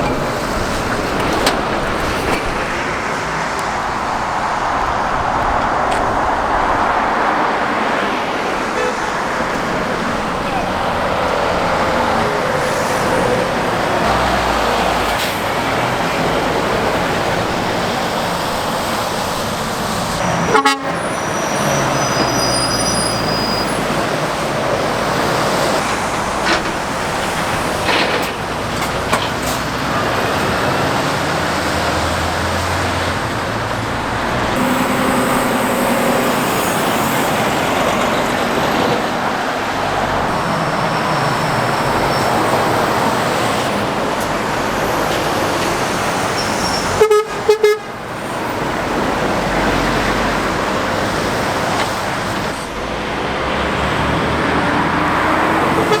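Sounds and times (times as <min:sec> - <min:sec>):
road traffic passing at speed: 0:00.0 - 0:56.0
short horn toot: 0:34.6 - 0:38.3.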